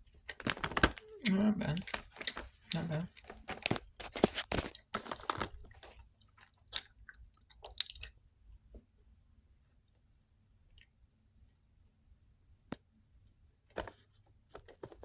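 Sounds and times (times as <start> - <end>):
person chewing crunchy cookie: 0.0 - 8.3.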